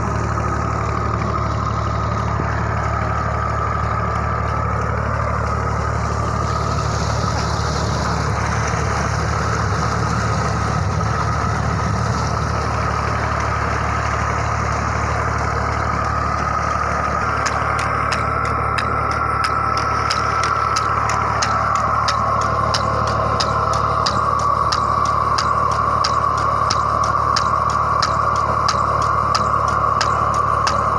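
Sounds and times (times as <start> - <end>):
pump whine: 0.0 - 30.9
tractor engine running: 0.0 - 30.9
fast ticking clicks: 17.2 - 30.9.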